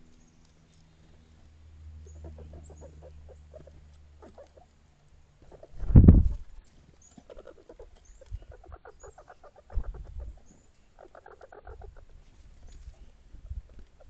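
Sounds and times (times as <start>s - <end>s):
rapid short animal calls: 2.0s - 4.7s, 7.1s - 12.2s.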